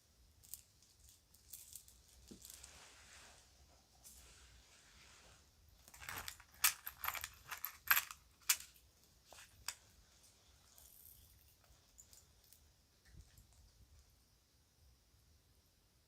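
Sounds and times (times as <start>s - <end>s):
jewelry clinking and jingling: 0.4s - 2.7s, 5.8s - 9.8s, 10.5s - 12.6s.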